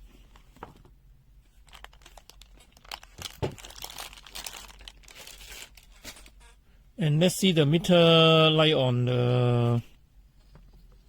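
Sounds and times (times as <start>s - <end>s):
rustling and crinkling: 0.0s - 6.6s.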